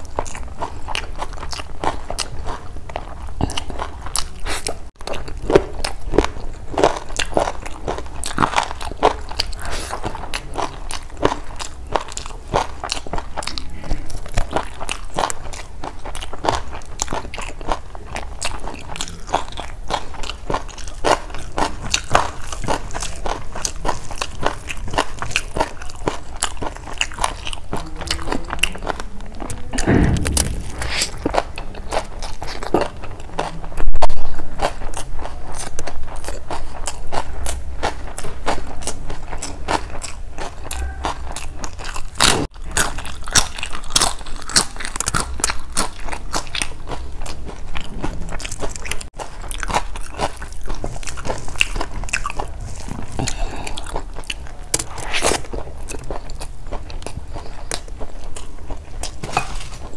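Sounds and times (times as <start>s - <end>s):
wet chewing: 0.0s - 59.9s
sudden loud burst: 29.7s - 32.0s
lip smacks: 48.4s - 58.5s.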